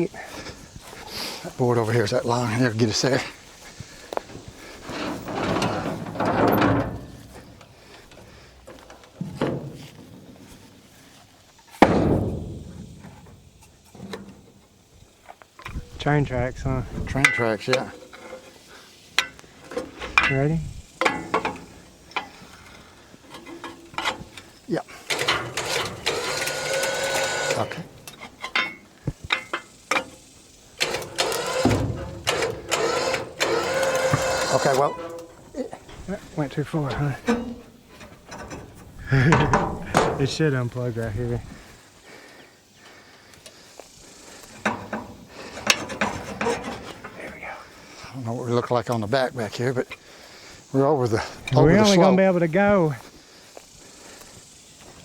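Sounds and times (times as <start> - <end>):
rough scraping noise: 0.5 - 7.6, 30.9 - 41.5
winch motor whining: 19.2 - 41.7.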